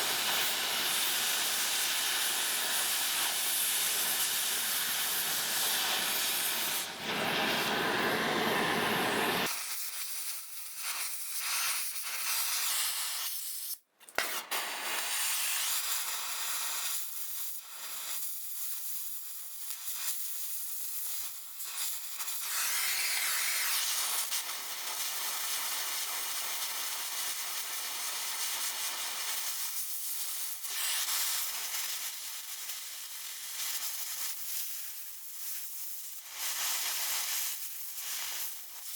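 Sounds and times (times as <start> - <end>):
cutting torch hissing: 0.0 - 10.1, 11.4 - 17.0, 21.0 - 34.1.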